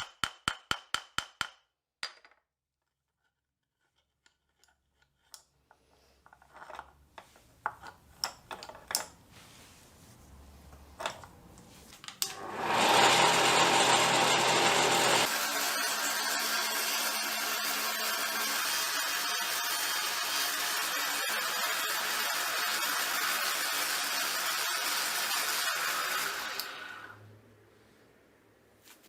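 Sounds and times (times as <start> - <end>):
electric power tool rasping on metal: 12.5 - 27.1.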